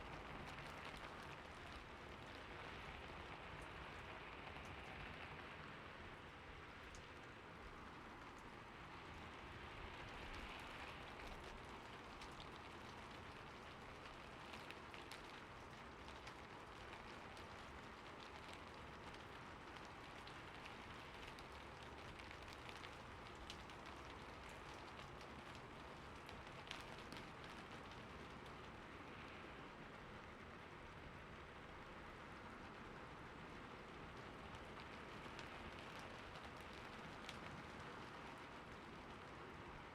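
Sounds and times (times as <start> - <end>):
quiet steady rain: 0.0 - 39.9.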